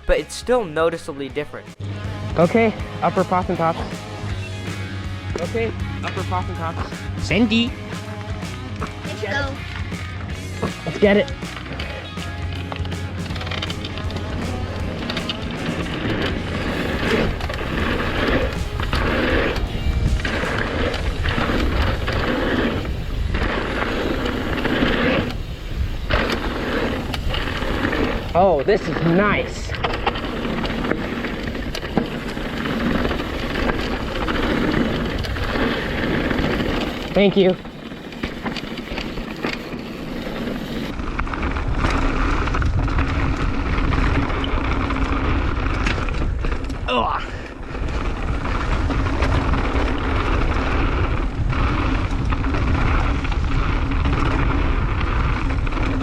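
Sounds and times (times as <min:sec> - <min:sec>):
tyres on dirt: 0:01.8 - 0:56.0
bike rattles and clicks: 0:02.4 - 0:56.0
wind rushing over microphone: 0:13.0 - 0:56.0.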